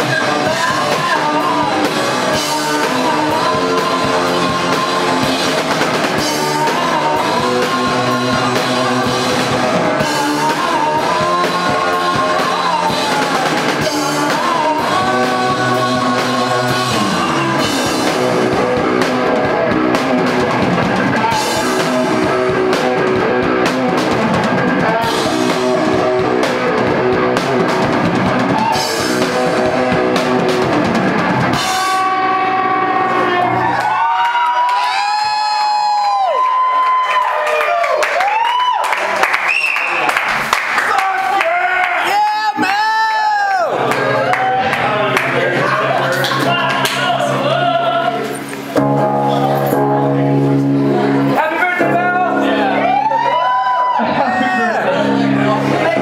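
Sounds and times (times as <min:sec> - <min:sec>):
person singing: 0:00.0 - 0:33.7, 0:42.5 - 0:52.9
rock band playing: 0:00.0 - 0:56.0.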